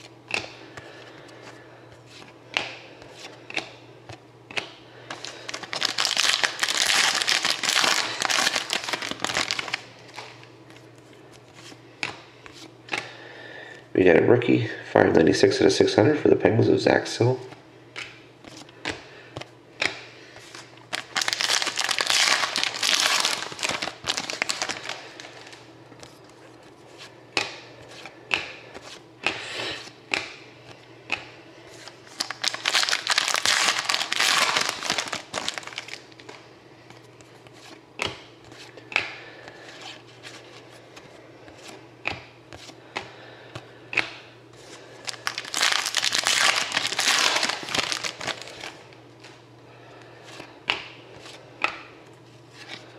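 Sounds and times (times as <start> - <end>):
foil wrappers crinkling and tearing: 5.1 - 10.4, 20.5 - 26.2, 31.8 - 36.4, 44.6 - 49.4
clicks and taps of card handling: 30.1 - 30.4, 50.6 - 50.9.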